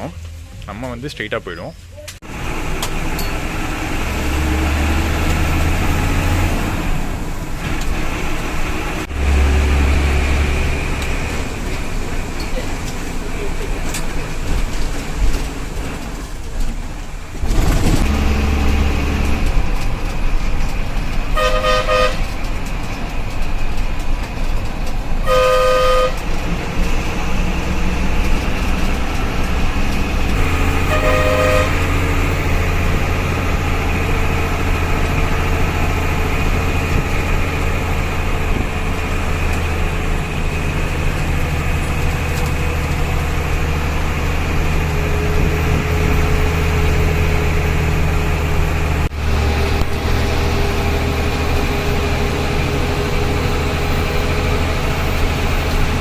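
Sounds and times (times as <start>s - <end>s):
bus engine rumbling: 0.0s - 56.0s
vehicle horn: 21.4s - 22.4s, 25.2s - 26.3s, 30.4s - 32.0s.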